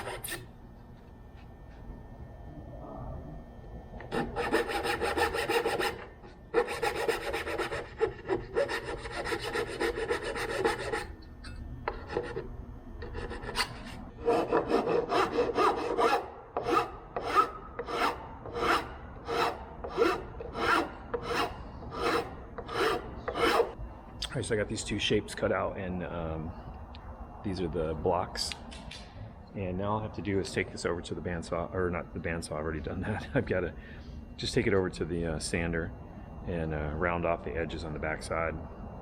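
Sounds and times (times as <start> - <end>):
hand tool rasping on wood: 4.1 - 11.1, 13.2 - 23.7.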